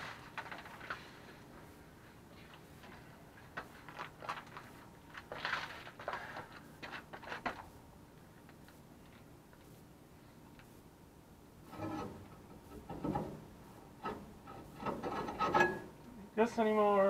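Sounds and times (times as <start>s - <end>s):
metal tools clinking and scraping: 14.5s - 15.9s.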